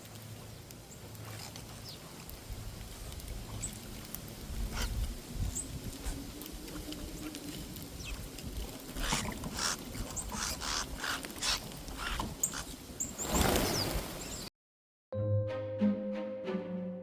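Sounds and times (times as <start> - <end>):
birds chirping: 8.9 - 14.5.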